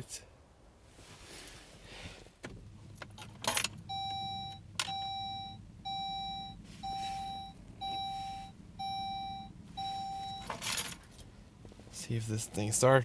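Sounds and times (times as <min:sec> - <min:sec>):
low steady hum: 0:00.0 - 0:13.0
dashboard warning chime beeping: 0:03.6 - 0:11.0.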